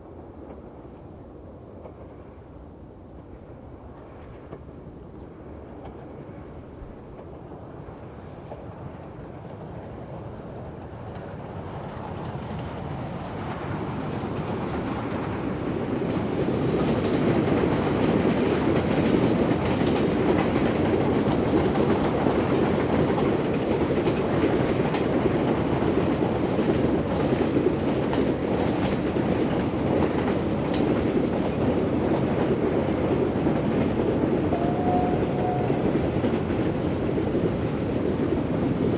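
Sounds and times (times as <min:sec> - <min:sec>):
train wheels clattering over rail joints: 0:08.2 - 0:38.9.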